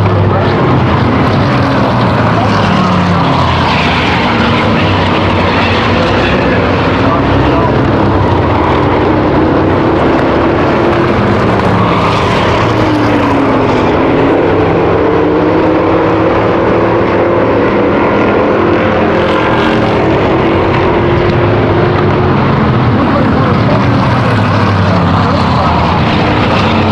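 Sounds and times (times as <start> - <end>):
race car engines droning: 0.0 - 26.9.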